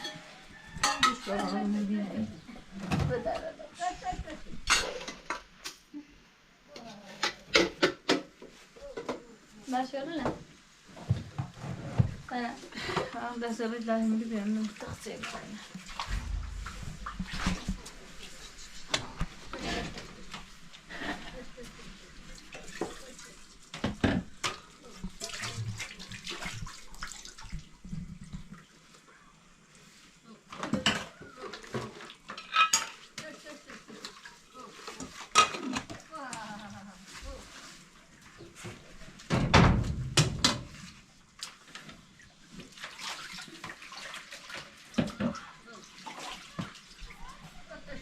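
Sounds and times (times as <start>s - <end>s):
water pouring and splashing: 12.2s - 48.0s
heavy thud: 16.1s - 18.1s.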